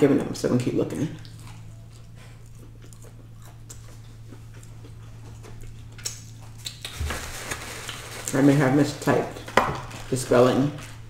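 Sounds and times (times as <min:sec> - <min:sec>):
steady low hum: 0:00.0 - 0:11.0
wet mouth clicks chewing: 0:01.2 - 0:07.0.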